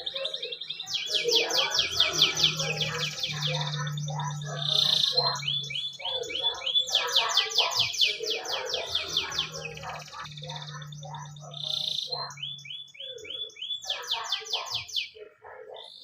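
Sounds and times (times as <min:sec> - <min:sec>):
canary singing: 0:00.0 - 0:16.0.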